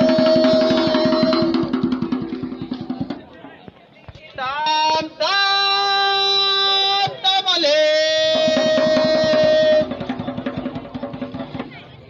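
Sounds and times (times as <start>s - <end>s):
rhythmic percussive strokes: 0.0s - 3.6s, 8.1s - 11.9s.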